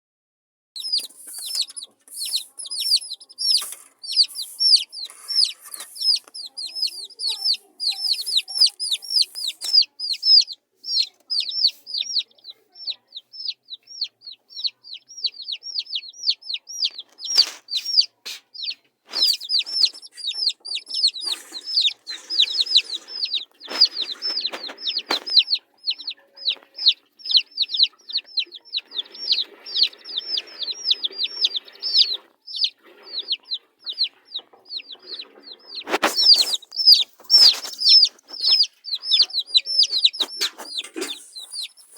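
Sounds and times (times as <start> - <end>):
baby chicks peeping: 0.8 - 41.9
knocks and rustles: 40.2 - 41.7.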